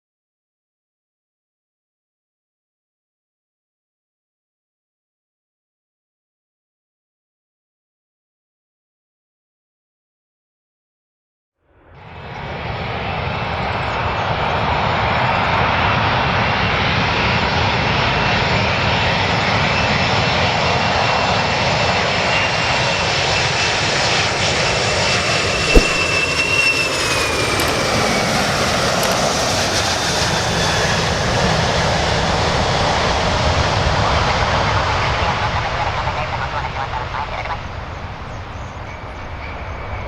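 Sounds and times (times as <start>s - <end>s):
airplane engines roaring: 12.0s - 24.5s
sharp click: 25.8s - 26.2s.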